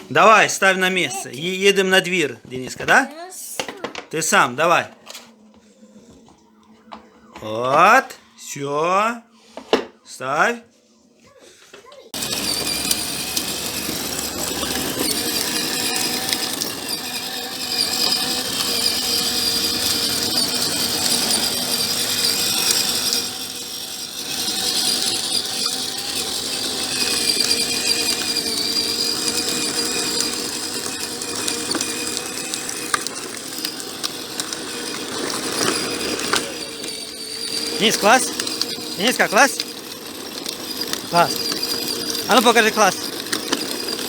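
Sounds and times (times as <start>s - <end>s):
electric motorcycle motor whine: 12.2s - 44.0s
gear grinding: 12.2s - 44.0s.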